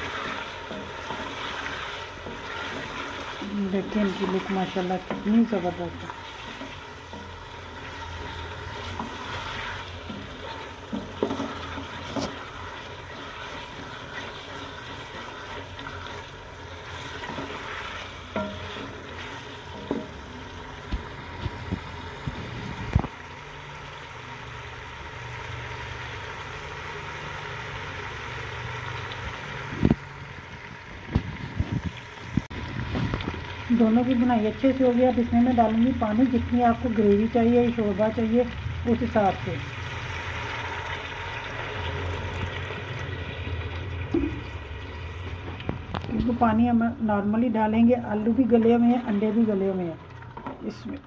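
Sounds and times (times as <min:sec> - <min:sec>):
wooden spoon stirring: 0:00.0 - 0:22.8
food sizzling in a pot: 0:00.0 - 0:51.0.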